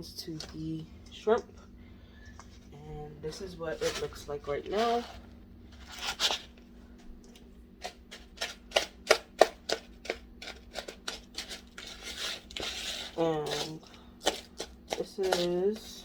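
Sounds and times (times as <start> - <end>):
steady low hum: 0.0 - 16.0
hands mixing shrimp in bowl: 7.8 - 16.0.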